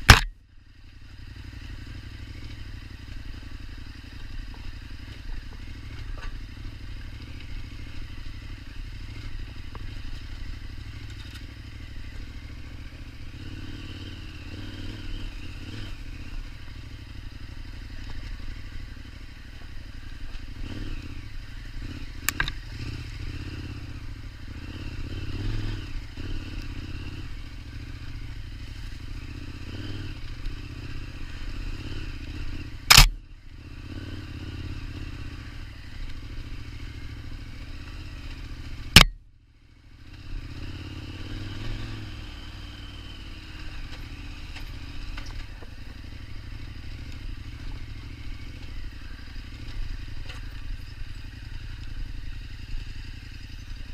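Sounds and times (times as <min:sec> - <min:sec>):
motorcycle engine low revs: 0:01.0 - 0:53.9
motorcycle clattering: 0:22.2 - 0:22.6.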